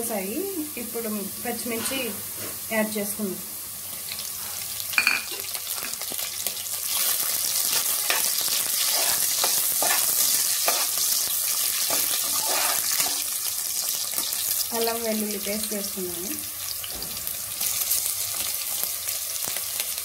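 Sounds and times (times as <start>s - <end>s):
chillies sizzling in hot oil: 0.0s - 20.0s
metal spatula scraping pot: 1.6s - 2.6s, 7.7s - 13.4s.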